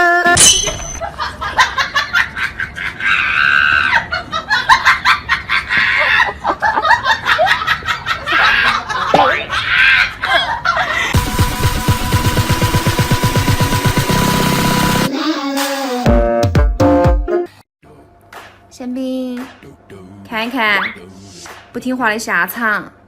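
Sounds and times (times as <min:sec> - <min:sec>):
person laughing and shrieking: 0:02.8 - 0:04.7, 0:08.1 - 0:11.1.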